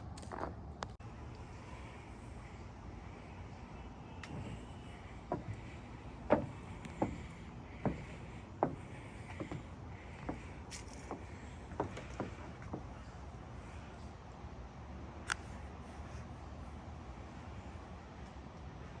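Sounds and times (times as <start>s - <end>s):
footsteps walking: 0.0s - 1.0s, 4.2s - 13.0s.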